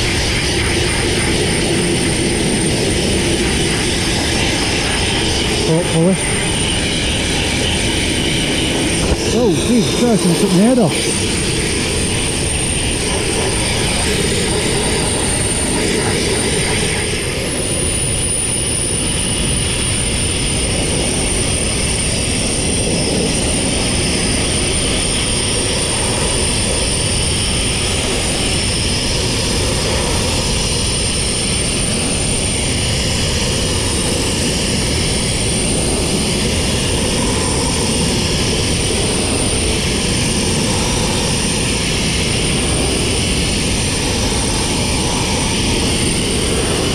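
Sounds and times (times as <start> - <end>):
sandblasting rig rushing: 0.0 - 26.8.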